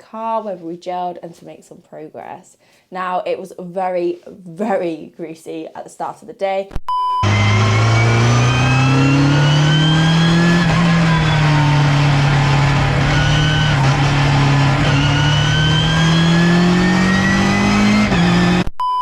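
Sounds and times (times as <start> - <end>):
race car engine under load: 7.2 - 18.7.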